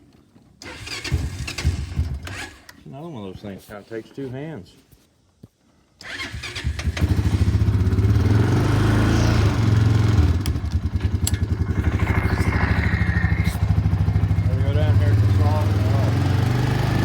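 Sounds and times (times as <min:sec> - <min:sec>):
large engine starting and idling: 0:00.6 - 0:02.7, 0:06.0 - 0:17.0.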